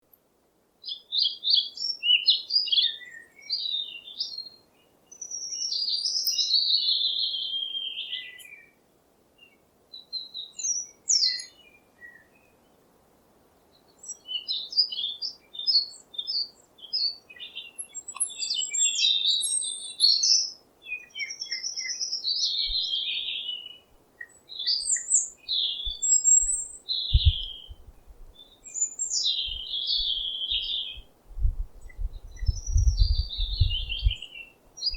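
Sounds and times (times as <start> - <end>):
songbirds chirping: 0.0 - 34.9
low thumps: 27.1 - 28.3, 31.3 - 34.2.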